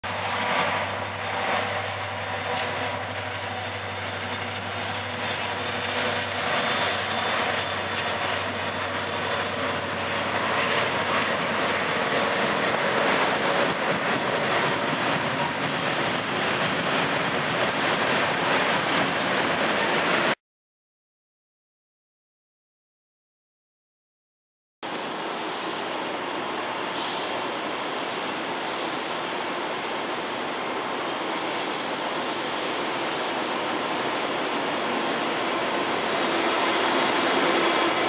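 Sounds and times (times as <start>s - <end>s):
diesel locomotive engine drone: 0.0s - 20.4s, 24.8s - 38.0s
freight cars rumbling on rails: 0.0s - 20.4s, 25.0s - 38.0s.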